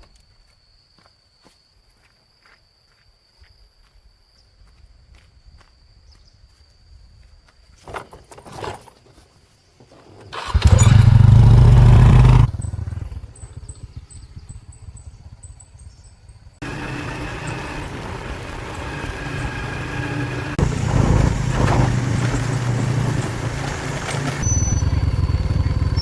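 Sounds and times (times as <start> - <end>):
small engine running: 10.4 - 26.0.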